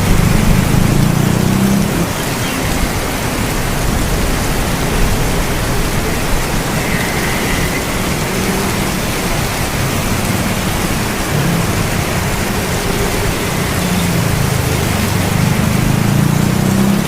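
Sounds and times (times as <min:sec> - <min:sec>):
low thunder rumble: 0:00.0 - 0:15.9
rain hissing: 0:00.0 - 0:17.0.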